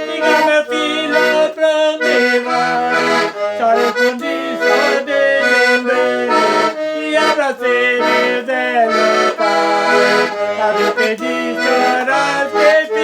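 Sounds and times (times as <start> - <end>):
accordion melody: 0.0 - 13.0.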